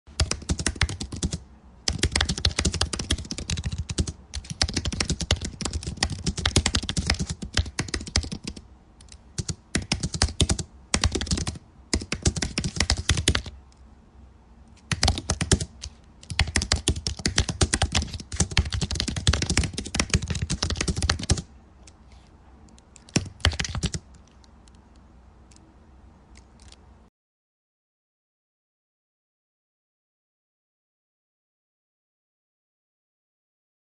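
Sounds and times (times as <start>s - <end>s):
keyboard typing: 0.1s - 13.8s, 14.8s - 25.7s, 26.3s - 26.8s.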